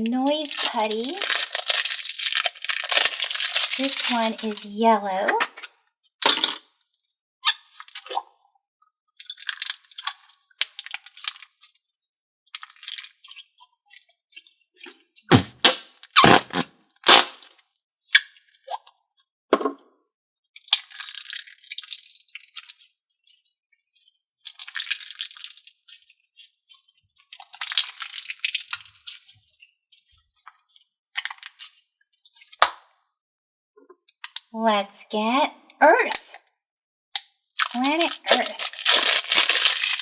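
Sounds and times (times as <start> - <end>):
slime popping and squelching: 0.0 - 4.7, 15.3 - 17.4, 37.5 - 40.0
crackly slime squishing: 0.2 - 4.7, 37.5 - 40.0.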